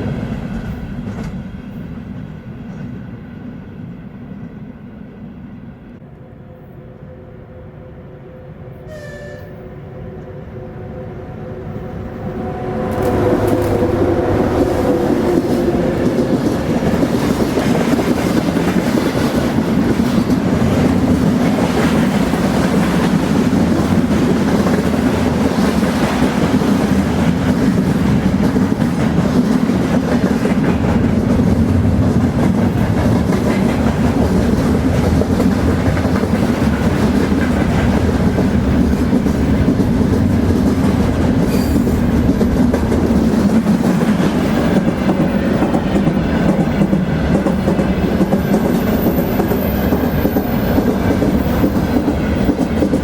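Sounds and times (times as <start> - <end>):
train cars rolling on track: 11.5 - 53.0.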